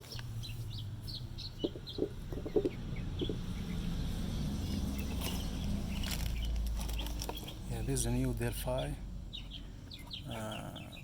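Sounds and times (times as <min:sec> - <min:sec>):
birds chirping: 0:00.0 - 0:11.0
bird clucking: 0:01.4 - 0:03.8.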